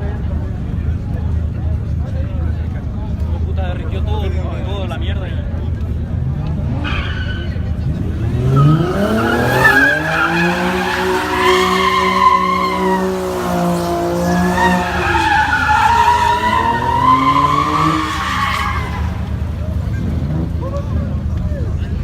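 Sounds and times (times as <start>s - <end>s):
car engine revving high: 6.2s - 20.8s
tires squealing: 6.2s - 21.4s.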